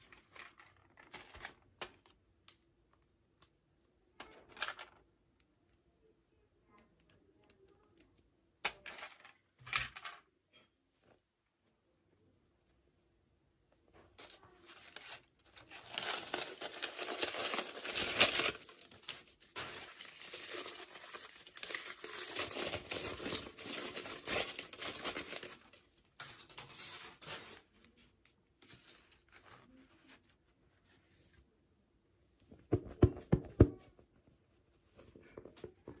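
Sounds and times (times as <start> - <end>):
small handling sounds: 0.0 - 5.8, 6.4 - 12.8, 13.6 - 36.0
packaging crinkling and tearing: 14.2 - 25.9.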